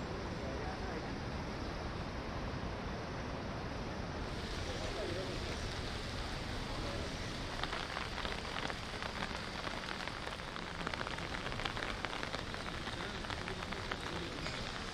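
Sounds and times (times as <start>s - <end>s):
rain falling on wet street: 4.2s - 14.9s.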